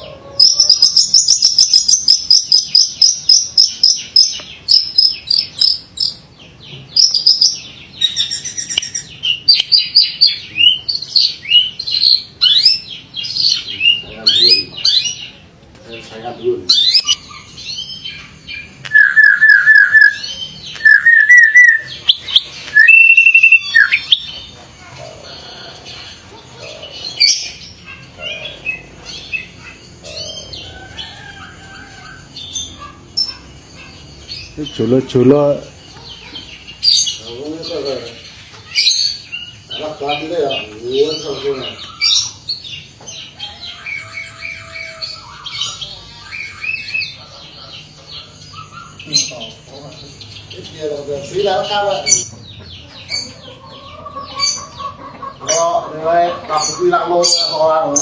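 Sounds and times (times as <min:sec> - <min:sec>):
myna bird whistling song: 0:00.4 - 0:15.4, 0:16.7 - 0:24.4, 0:38.7 - 0:47.2
starling harsh squawks and whistles: 0:16.7 - 0:24.3.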